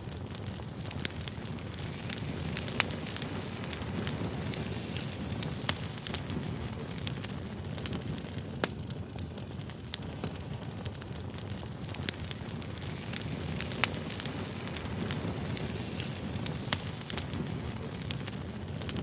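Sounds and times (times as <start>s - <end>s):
flames rustling: 0.0s - 19.0s
wood crackling and popping: 0.0s - 19.0s.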